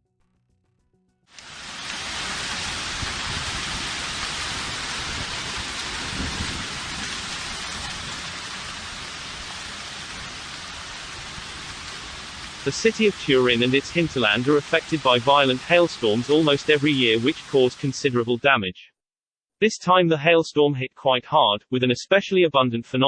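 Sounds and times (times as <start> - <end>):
rain and hail falling hard: 1.4 - 18.2.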